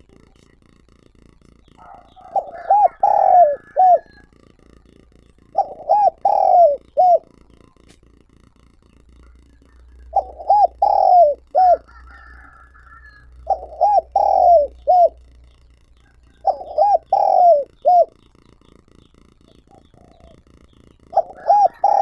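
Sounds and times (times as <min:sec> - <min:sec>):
dove cooing: 0:01.4 - 0:22.0
fainter higher bird call: 0:01.8 - 0:04.4, 0:05.5 - 0:07.4, 0:09.2 - 0:18.2, 0:19.0 - 0:22.0.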